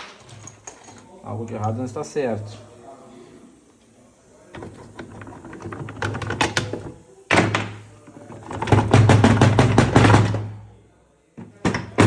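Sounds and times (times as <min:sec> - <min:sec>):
metal parts and tools clinking: 0:00.0 - 0:01.1.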